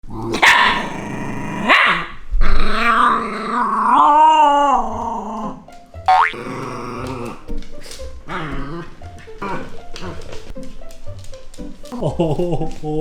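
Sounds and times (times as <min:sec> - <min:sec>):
dog growling and whining: 0:00.0 - 0:05.7, 0:06.3 - 0:07.5, 0:08.2 - 0:10.4.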